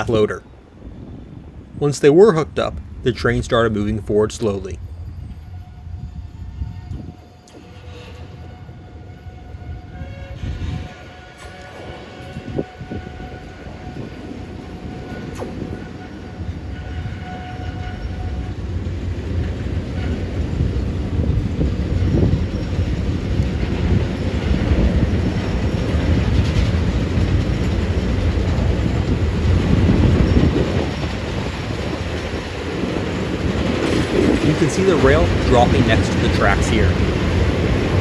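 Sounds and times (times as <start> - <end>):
train rolling rumble: 0.0 - 38.0.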